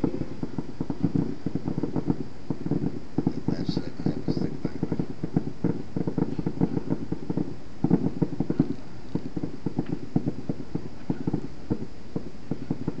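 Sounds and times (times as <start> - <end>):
fireworks crackling: 0.0 - 13.0.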